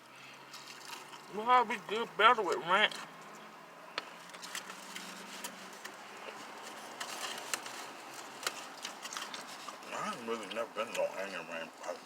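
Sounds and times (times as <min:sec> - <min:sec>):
chewing crunchy food: 0:00.4 - 0:01.3, 0:04.2 - 0:12.0
paper wrappers crinkling: 0:04.3 - 0:12.0.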